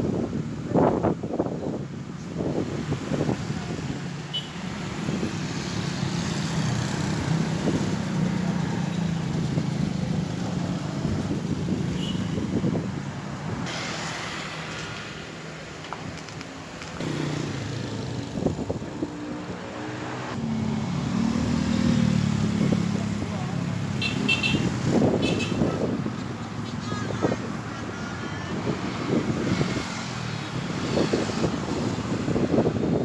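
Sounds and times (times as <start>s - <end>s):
passing road traffic: 0.0s - 33.0s.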